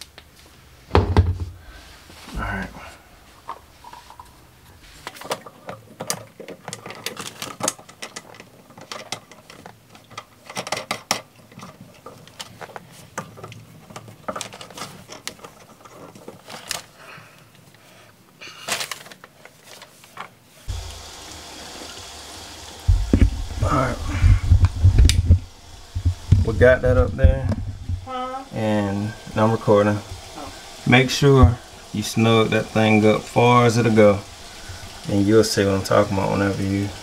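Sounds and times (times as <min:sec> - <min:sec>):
steady low hum: 0:20.7 - 0:37.0.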